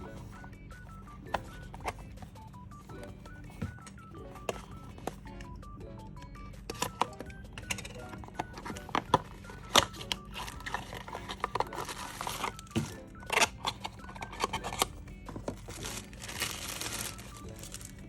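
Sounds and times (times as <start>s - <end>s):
soft background music: 0.0s - 18.0s
handling clicks and taps: 1.0s - 5.6s, 6.2s - 18.0s
plastic packaging crinkling: 7.8s - 18.0s.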